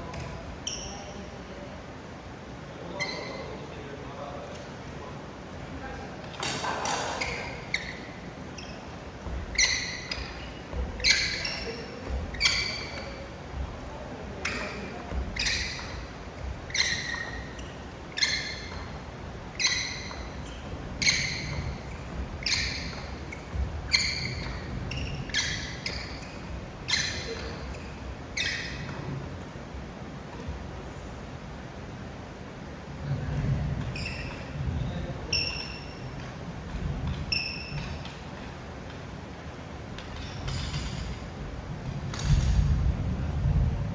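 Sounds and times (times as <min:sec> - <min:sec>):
racket hitting shuttlecock: 0:14.4 - 0:27.8.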